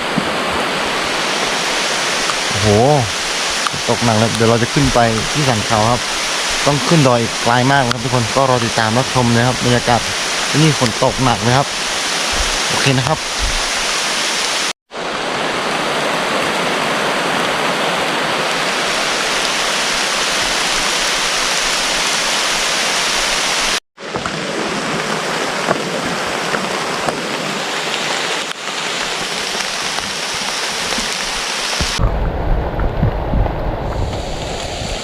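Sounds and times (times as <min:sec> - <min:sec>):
heavy rain pouring: 0:00.0 - 0:35.0
low rumble: 0:32.0 - 0:35.0.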